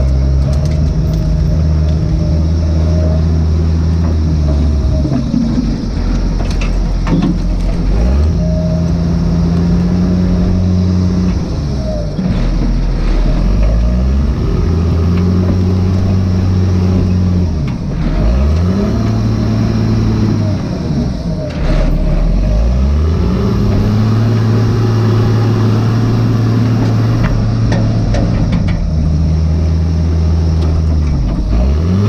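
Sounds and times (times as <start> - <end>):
diesel engine revving under load: 0.0 - 32.0.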